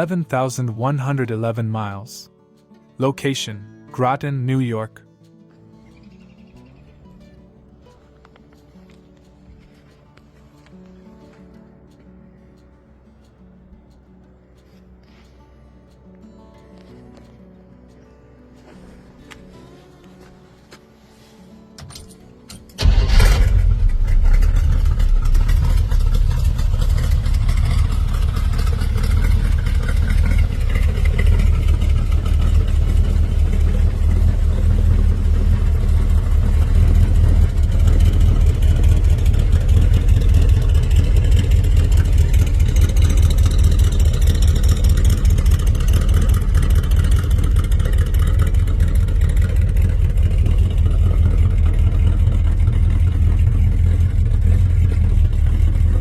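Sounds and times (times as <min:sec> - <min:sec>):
engine starting and idling: 0:21.8 - 0:56.0.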